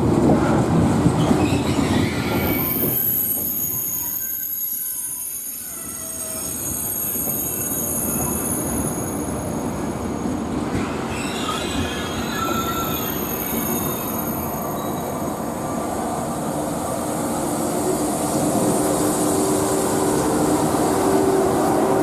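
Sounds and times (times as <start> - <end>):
train rumbling over rails: 0.0 - 22.0
high-pitched wheel squeals: 1.3 - 15.5.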